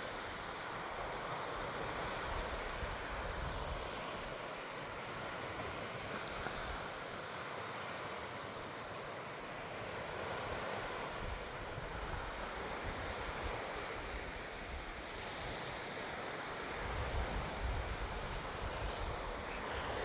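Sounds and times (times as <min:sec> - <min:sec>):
wind gusts rumbling on microphone: 0:00.0 - 0:04.5, 0:16.6 - 0:20.0
waves washing on shore: 0:00.0 - 0:20.0
wind: 0:00.0 - 0:20.0.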